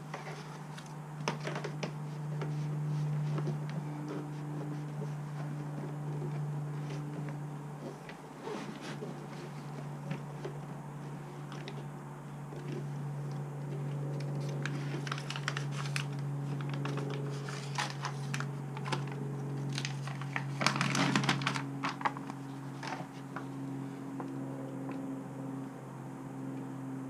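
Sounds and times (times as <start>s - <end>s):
crinkling and clicking sheets: 0.0s - 11.9s, 12.5s - 23.5s
steady low hum: 0.0s - 27.0s.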